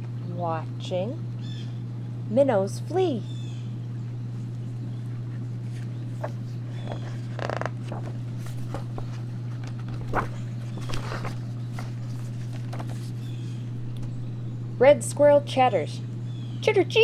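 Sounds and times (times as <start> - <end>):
steady low hum: 0.0 - 17.0
clicks and rustles: 5.0 - 14.3.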